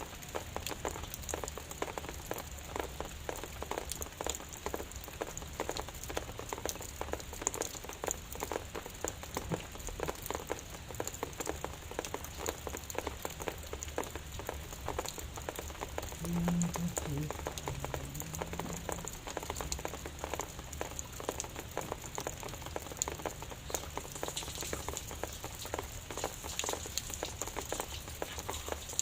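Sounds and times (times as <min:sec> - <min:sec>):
light rain drops striking surface: 0:00.0 - 0:29.0
low steady hum: 0:16.1 - 0:20.0.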